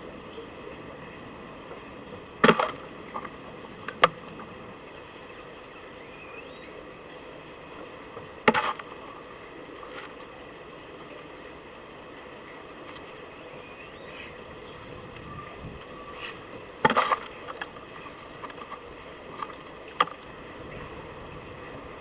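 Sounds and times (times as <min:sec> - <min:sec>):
sharp knocks at garden feeder: 0:02.4 - 0:02.8, 0:08.4 - 0:08.9, 0:16.8 - 0:17.3
faint rising bird call: 0:05.2 - 0:06.8, 0:13.4 - 0:16.5.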